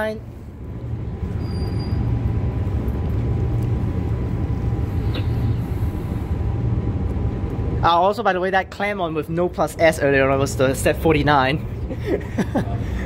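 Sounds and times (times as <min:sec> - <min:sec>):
electric train rumble inside carriage: 0:00.0 - 0:07.9.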